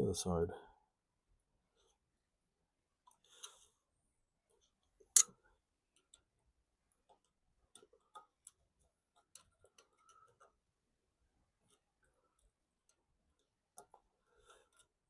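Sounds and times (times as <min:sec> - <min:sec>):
small metal clicks: 0:11.6 - 0:15.0.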